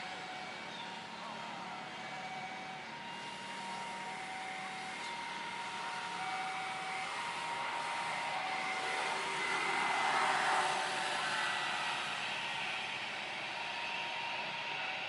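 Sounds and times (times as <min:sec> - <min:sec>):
jet engines whining: 0:07.4 - 0:15.0
steady rushing noise: 0:07.6 - 0:14.9.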